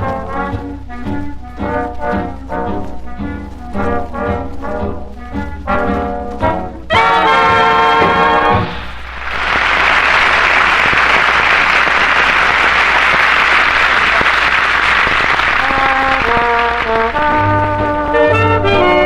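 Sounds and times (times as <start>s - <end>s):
band instruments playing: 1.6s - 19.0s
studio audience applauding: 8.5s - 17.4s.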